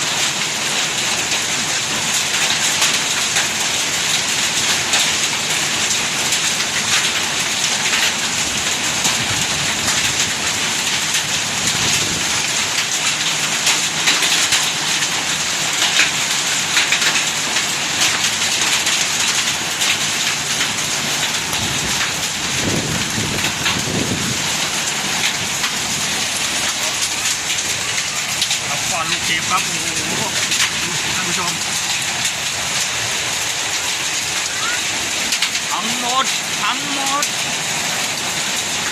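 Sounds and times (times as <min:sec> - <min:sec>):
hail and rain pelting: 0:00.0 - 0:38.9.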